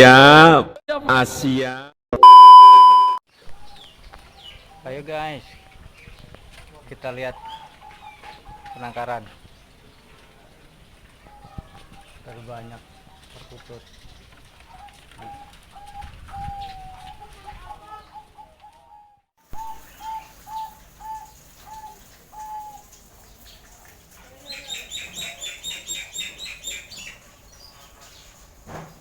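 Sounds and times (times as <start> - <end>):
doves cooing: 3.6 - 13.6, 14.3 - 28.4
bird high chirps: 24.5 - 28.4.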